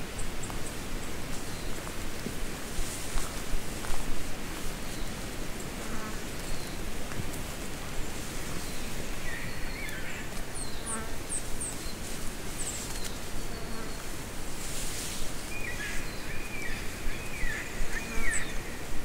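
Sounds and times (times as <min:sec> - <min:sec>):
steady background hiss: 0:00.0 - 0:19.0
forest birds chirping and warbling: 0:15.5 - 0:18.9.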